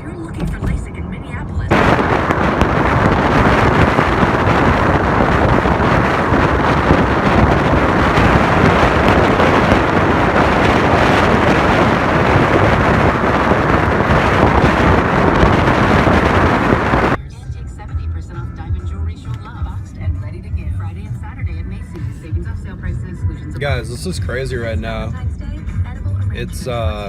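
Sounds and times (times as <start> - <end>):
wind buffeting microphone: 0.0 - 17.2
road rumble: 0.0 - 27.0.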